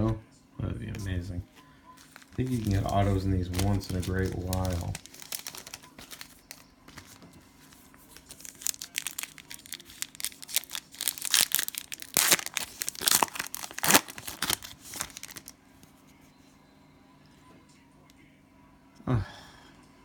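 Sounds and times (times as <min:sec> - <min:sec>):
cellophane wrapper tearing and crinkling: 0:02.0 - 0:15.5.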